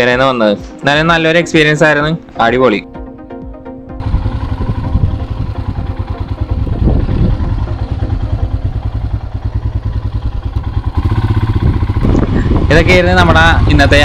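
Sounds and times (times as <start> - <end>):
motorcycle engine running: 4.0 - 14.0.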